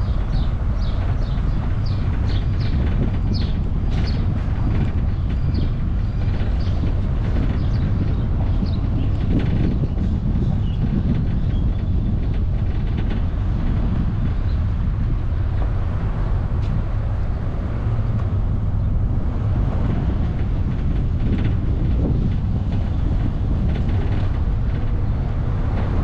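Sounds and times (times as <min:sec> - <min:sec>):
car driving at road speed: 0:12.3 - 0:26.0.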